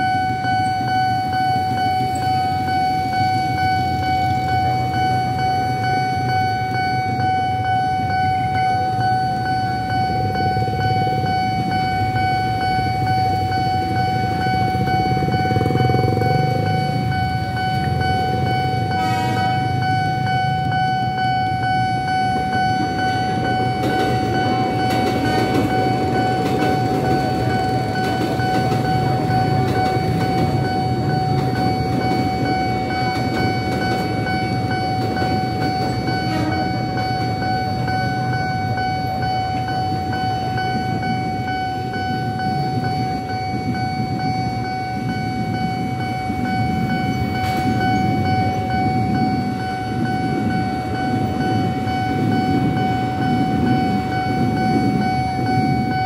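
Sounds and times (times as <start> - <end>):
crossing alarm high tone: 0.0 - 56.0
electric train rumbling past: 0.0 - 56.0
motorcycles idling: 7.1 - 41.2.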